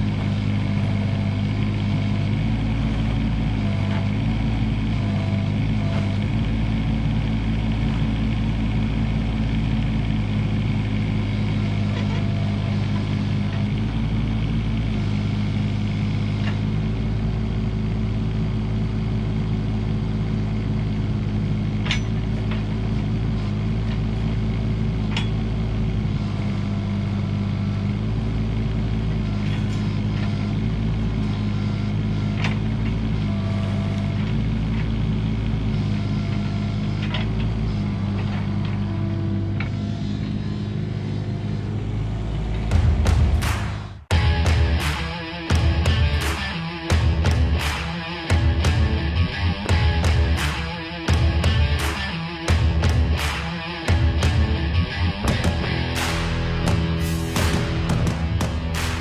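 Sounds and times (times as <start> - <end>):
diesel engine running: 0.0 - 59.0
hydraulic whine: 29.0 - 59.0
sharp metallic knocks: 42.6 - 59.0.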